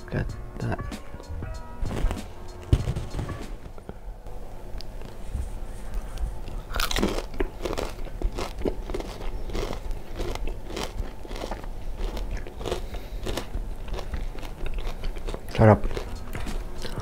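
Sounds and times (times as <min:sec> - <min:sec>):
wet crunchy chewing: 0:06.4 - 0:17.0.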